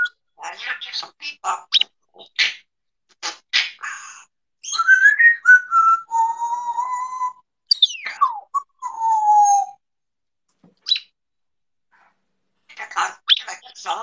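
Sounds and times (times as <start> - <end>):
parrot whistling a tune: 4.6 - 9.8.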